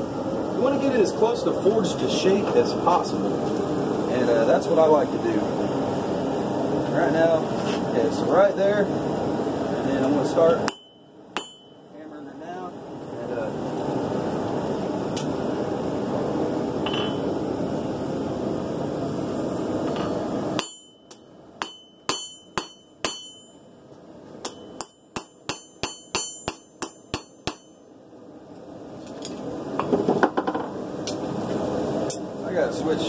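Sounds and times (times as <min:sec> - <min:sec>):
hammer striking blade on anvil: 0:10.6 - 0:11.8, 0:16.9 - 0:17.3, 0:20.0 - 0:23.7, 0:24.4 - 0:27.9.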